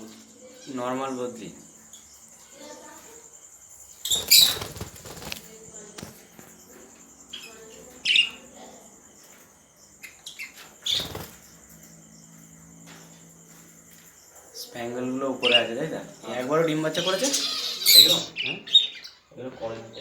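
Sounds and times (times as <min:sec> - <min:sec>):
budgerigars fluttering wings: 0:04.0 - 0:06.7, 0:10.2 - 0:11.8, 0:15.4 - 0:18.4
budgerigar chirps: 0:16.8 - 0:19.3.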